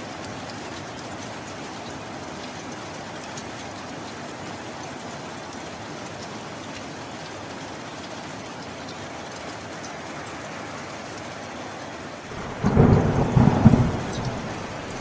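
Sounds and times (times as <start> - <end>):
raindrops ticking: 0.0 - 15.0
heavy rain hissing: 11.4 - 15.0.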